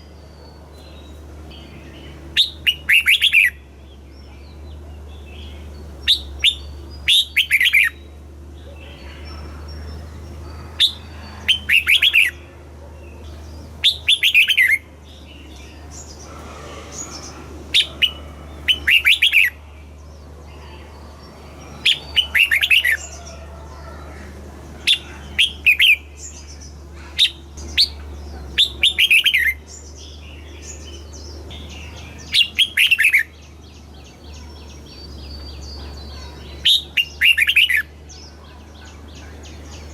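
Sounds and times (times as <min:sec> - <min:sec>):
steady low hum: 0:00.0 - 0:39.9
bird singing whistled notes: 0:05.5 - 0:08.1, 0:13.8 - 0:14.8.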